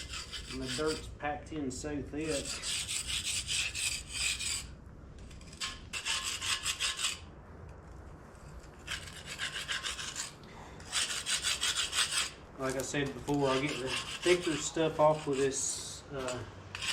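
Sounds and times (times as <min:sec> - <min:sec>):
chisel scraping dirt off metal: 0:02.3 - 0:07.2, 0:16.2 - 0:16.9.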